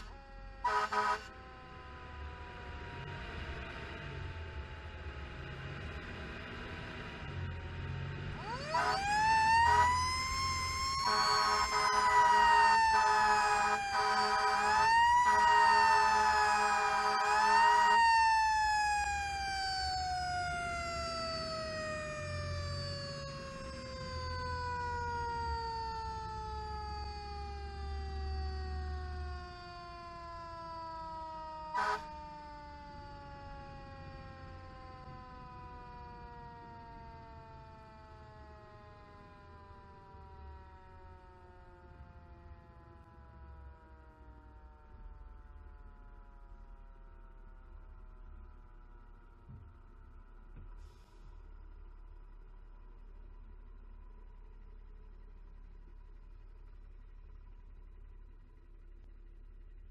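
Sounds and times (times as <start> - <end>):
horn blasts: 0.0 - 1.6, 8.4 - 10.0, 11.0 - 18.0, 31.6 - 32.3.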